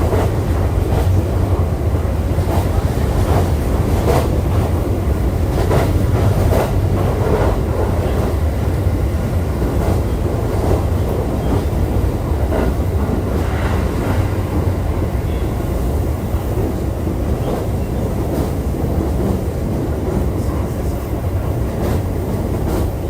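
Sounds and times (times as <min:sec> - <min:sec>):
train wheels rumbling on rail: 0:00.0 - 0:23.0
clacks over rail joints: 0:05.5 - 0:08.4.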